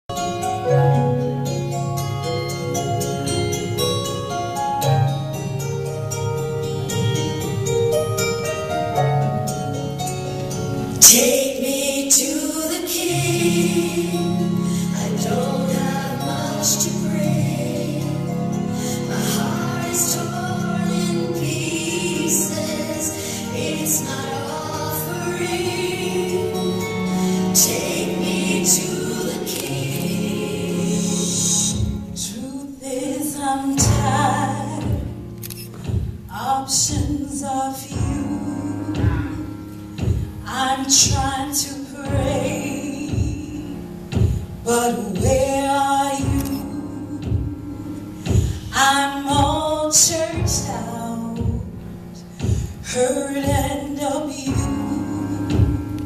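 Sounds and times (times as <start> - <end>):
sustained instrumental chords: 0.1 - 36.4, 37.0 - 56.0
gospel choir singing: 9.9 - 35.3, 36.3 - 56.0
light slow beat: 38.9 - 40.5.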